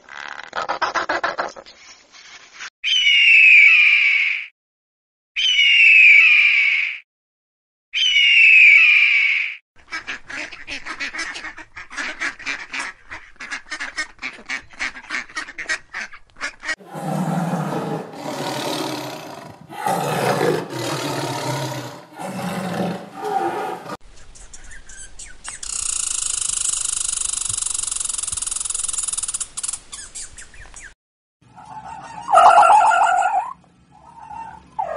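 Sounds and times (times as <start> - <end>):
animal calls: 16.8 - 24.0, 31.6 - 34.9.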